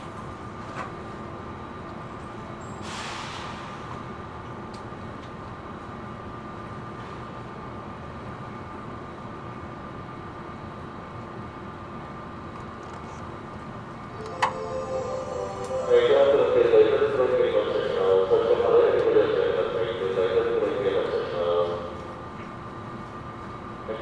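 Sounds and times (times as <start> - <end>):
train cabin hum and hiss: 0.0 - 24.0
short air hiss: 2.8 - 3.8
pitched tone: 14.2 - 16.7.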